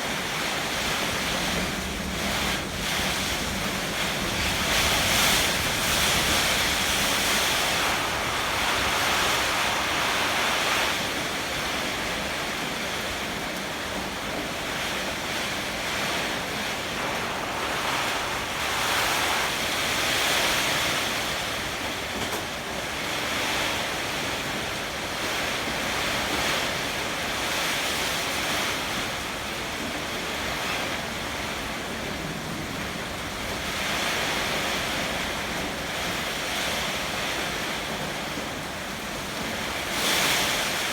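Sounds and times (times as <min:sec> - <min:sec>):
heavy rain pouring: 0:00.0 - 0:40.9
strong wind: 0:00.0 - 0:40.9
wind buffeting microphone: 0:00.2 - 0:23.6.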